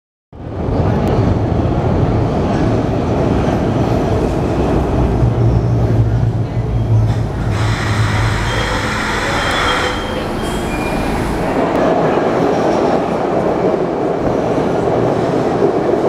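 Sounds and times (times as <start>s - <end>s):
subway train wheels rumbling: 0.4s - 16.0s
wheel squeal: 7.4s - 11.3s.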